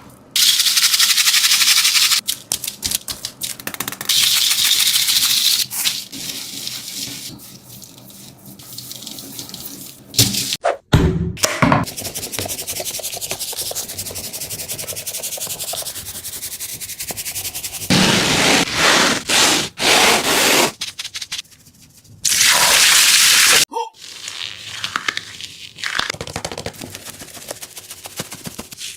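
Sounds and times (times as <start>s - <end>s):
squishy toys squeezed and rubbed: 24.0s - 28.9s.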